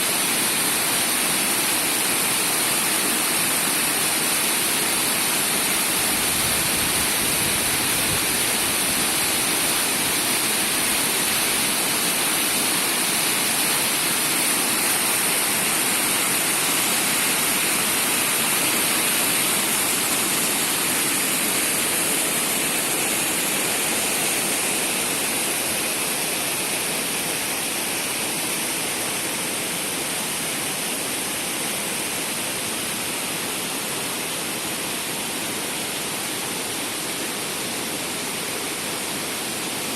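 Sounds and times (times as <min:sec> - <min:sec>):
rushing mountain water: 0:00.0 - 0:39.9.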